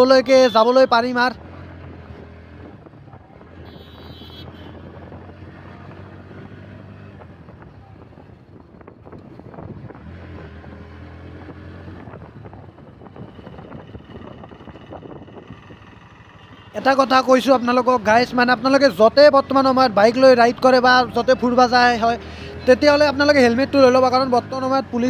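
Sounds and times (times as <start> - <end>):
wind buffeting microphone: 7.2 - 10.1, 11.5 - 16.7
motorcycle engine running: 12.4 - 25.0.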